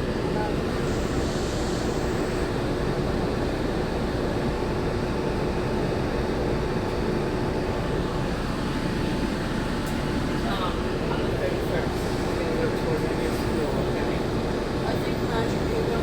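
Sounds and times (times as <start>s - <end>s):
monorail rumbling: 7.5s - 16.0s.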